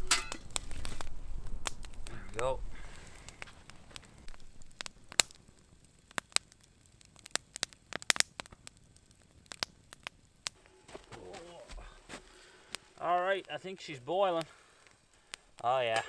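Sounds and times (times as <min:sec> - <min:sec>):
campfire crackling: 0:00.0 - 0:16.0
faint hiss: 0:00.0 - 0:16.0.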